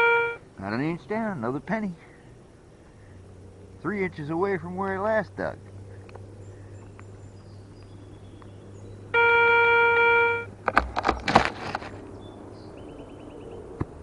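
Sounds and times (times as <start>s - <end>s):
metal detector beep: 0.0s - 0.4s, 9.2s - 10.5s
knocks and scrapes: 10.6s - 12.1s.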